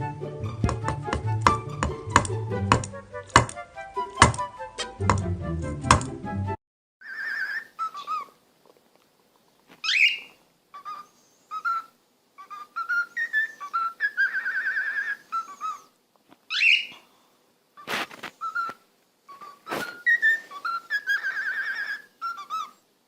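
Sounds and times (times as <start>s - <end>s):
parrot whistling: 7.0s - 8.4s, 9.8s - 15.9s, 16.5s - 16.9s, 18.4s - 22.8s.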